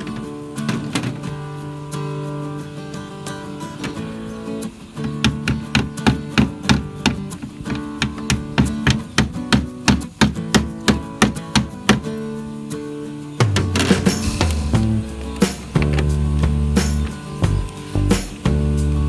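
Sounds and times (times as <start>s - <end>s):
strummed acoustic guitar: 0.0s - 19.0s
bass part: 13.4s - 19.0s.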